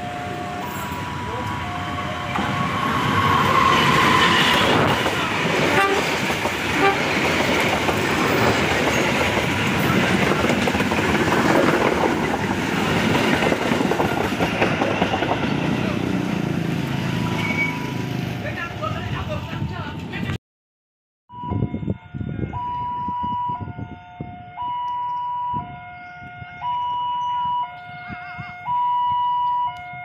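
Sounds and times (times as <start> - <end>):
diesel train rumbling past: 0.0 - 20.4.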